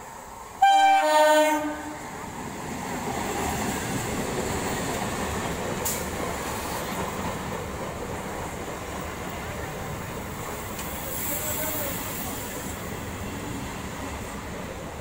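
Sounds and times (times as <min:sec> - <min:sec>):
train coaches running on rails: 0:00.0 - 0:15.0
train horn blast: 0:00.6 - 0:02.1.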